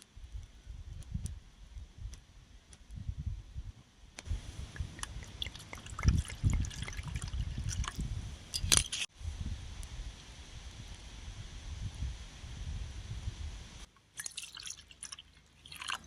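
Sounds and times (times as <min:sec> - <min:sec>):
wind rumble on microphone: 0:00.0 - 0:13.9
liquid dripping and splashing: 0:04.7 - 0:08.0, 0:14.2 - 0:16.0.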